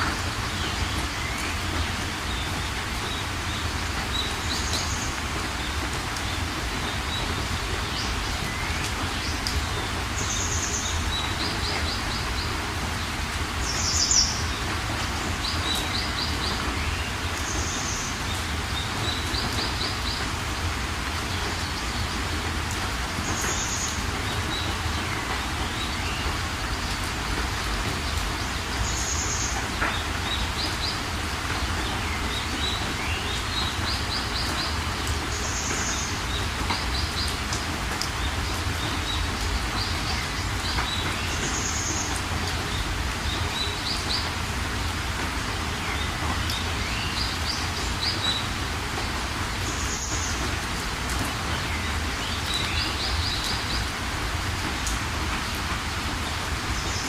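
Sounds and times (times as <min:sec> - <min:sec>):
songbirds calling: 0:00.0 - 0:57.0
steady rain: 0:00.0 - 0:57.0.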